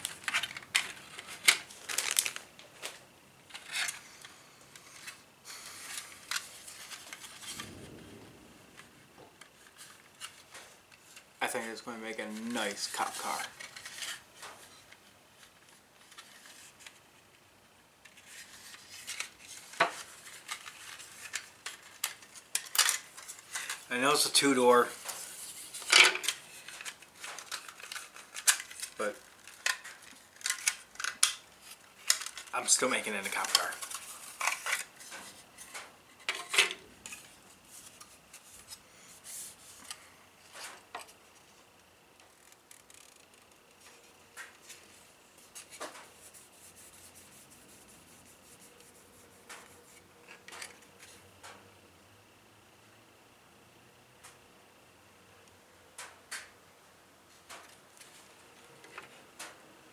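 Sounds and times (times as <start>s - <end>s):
plastic parts clicking and clattering: 0.0s - 5.2s, 5.8s - 7.7s, 18.0s - 23.9s, 25.7s - 32.6s, 33.2s - 38.8s
plastic parts clicking and tapping: 25.9s - 31.4s, 32.0s - 32.5s.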